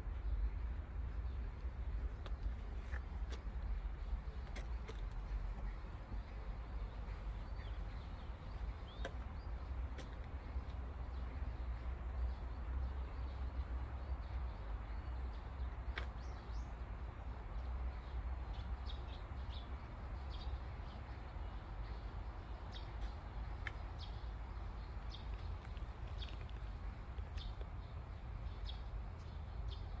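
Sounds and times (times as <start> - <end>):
small birds chirping: 0.1 - 30.0.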